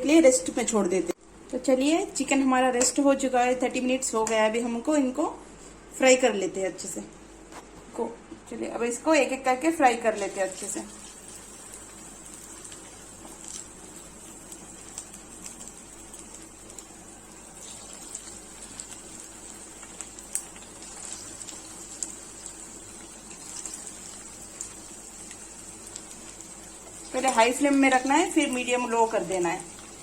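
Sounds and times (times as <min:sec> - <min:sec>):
chicken deep-frying in oil: 0:09.7 - 0:30.0.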